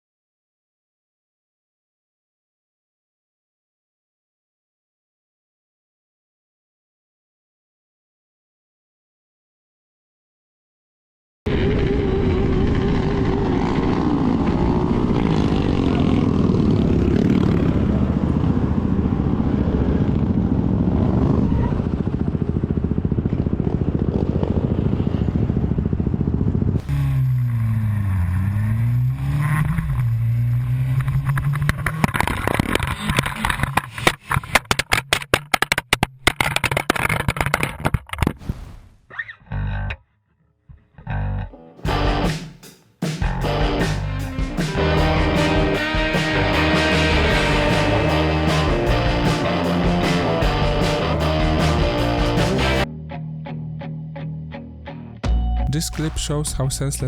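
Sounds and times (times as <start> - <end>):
motorcycle engine revving: 11.5 - 34.0, 41.9 - 42.6, 43.2 - 52.9.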